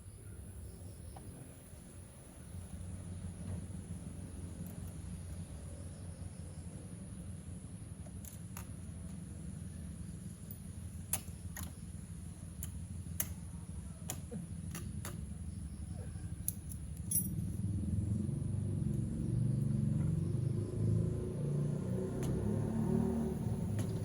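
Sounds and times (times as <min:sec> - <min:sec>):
metallic clinks of tools: 0:16.4 - 0:17.6.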